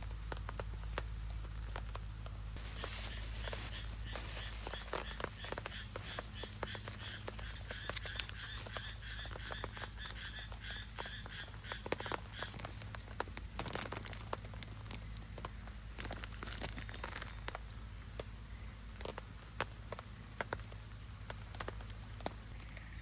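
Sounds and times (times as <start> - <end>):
frog calling rasping pulses: 2.6 - 12.8.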